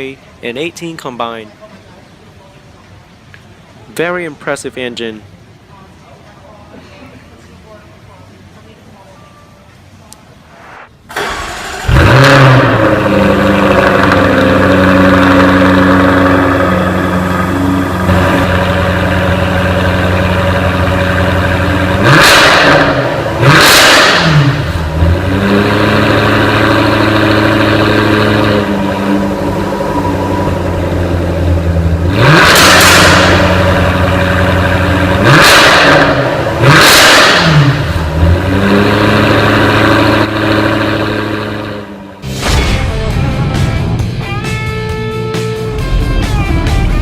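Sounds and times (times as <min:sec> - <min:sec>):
car engine starting and idling: 0:10.2 - 0:47.0
engine revving: 0:10.5 - 0:44.5.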